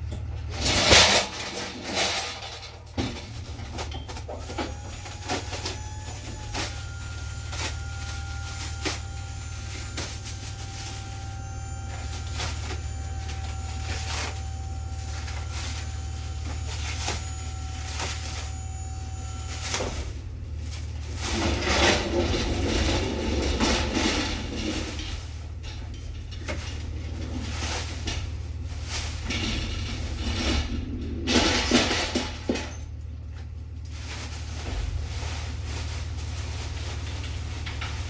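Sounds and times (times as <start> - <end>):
rustling scraping noise: 0.4 - 32.9, 33.8 - 38.0
vehicle engine idling: 2.7 - 31.3, 32.4 - 38.0
steady whine: 4.5 - 32.8.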